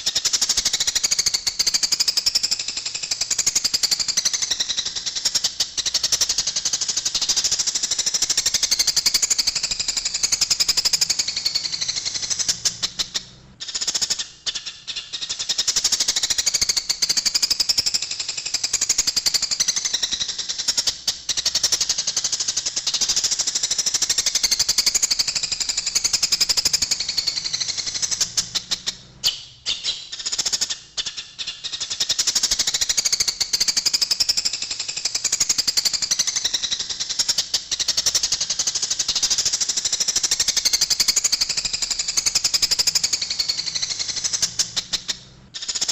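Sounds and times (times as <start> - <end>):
sparrows chattering: 0.0 - 18.0, 18.6 - 34.4, 35.4 - 45.9.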